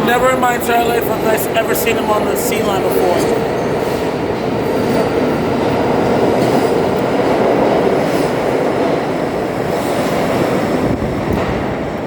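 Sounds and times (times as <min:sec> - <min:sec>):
subway train wheels rumbling: 0:00.0 - 0:12.0.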